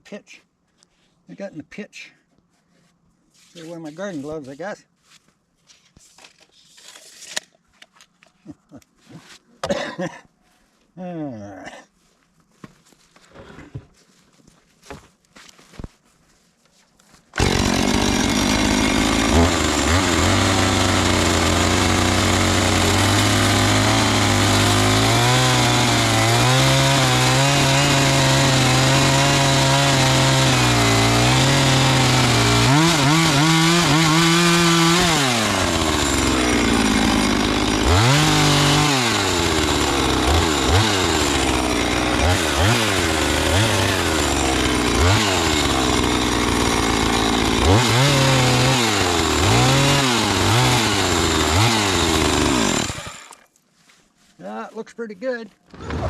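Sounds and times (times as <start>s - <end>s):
gas saw engine cutting lumber: 17.4s - 53.4s.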